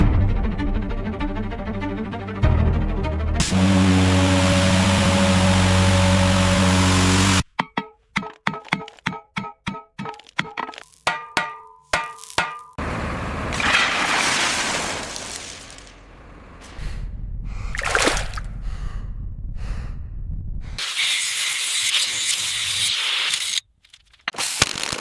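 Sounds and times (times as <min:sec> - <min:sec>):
ringing metal clangs: 0:07.5 - 0:12.8
low rumble: 0:16.0 - 0:20.8.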